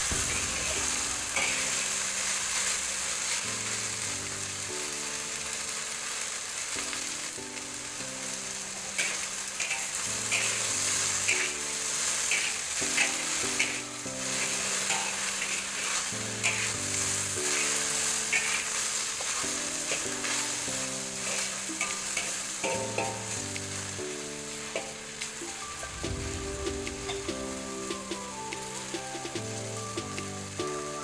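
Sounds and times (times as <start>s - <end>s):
okra sizzling in a wok: 0.0s - 31.0s
metal spatula scraping a pan: 9.0s - 11.6s, 12.3s - 13.8s, 14.4s - 16.8s, 17.4s - 20.4s.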